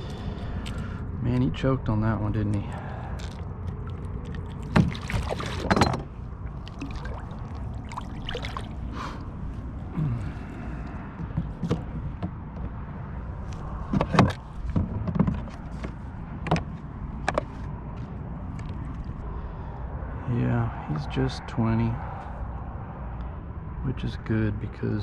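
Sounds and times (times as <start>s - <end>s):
steady low rumble: 0.0s - 25.0s
knocks and clatter on kayak: 4.6s - 6.2s, 11.1s - 12.8s, 13.8s - 17.5s.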